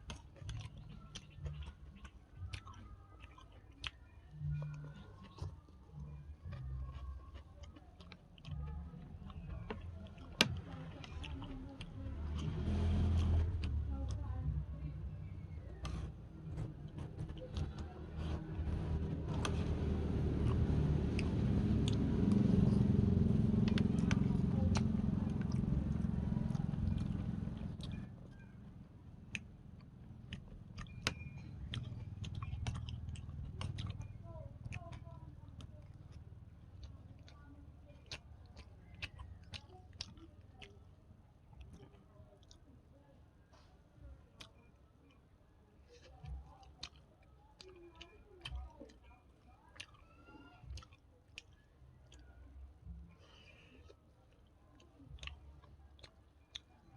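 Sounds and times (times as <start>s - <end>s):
person chewing and biting: 0.0s - 13.8s, 15.7s - 28.6s, 29.2s - 40.8s, 45.9s - 49.1s, 49.7s - 56.9s
low rumble with hiss: 0.0s - 44.5s
small eating clicks: 0.0s - 56.9s.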